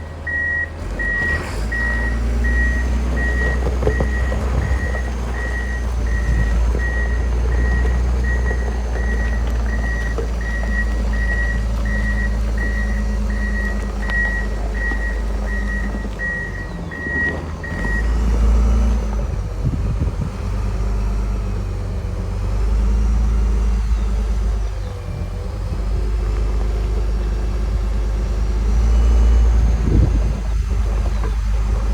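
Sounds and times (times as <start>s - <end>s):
diesel engine running: 0.0s - 31.9s
backup alarm beeping: 0.2s - 18.2s.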